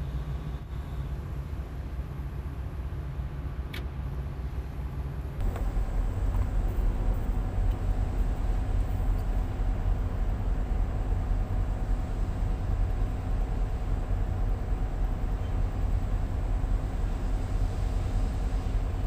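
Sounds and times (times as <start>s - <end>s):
diesel engine low rumble: 0.0s - 19.0s
faint steady hum: 5.4s - 19.0s.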